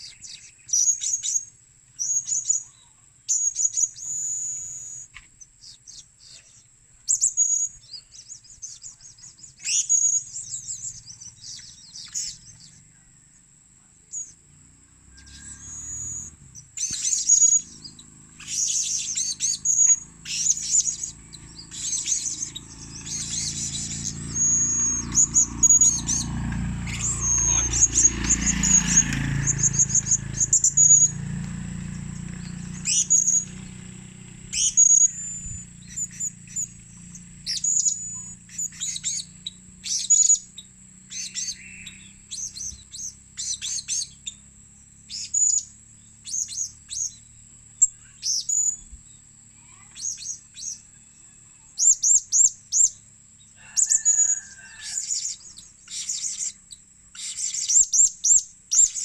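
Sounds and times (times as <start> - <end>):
parrot chirping: 15.2 - 31.3, 32.0 - 33.6, 34.5 - 44.4, 45.1 - 47.2, 53.6 - 59.0.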